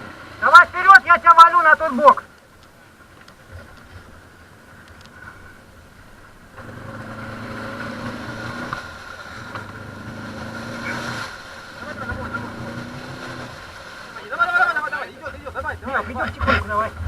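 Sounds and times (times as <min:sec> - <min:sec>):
atv engine running: 0:03.0 - 0:14.2.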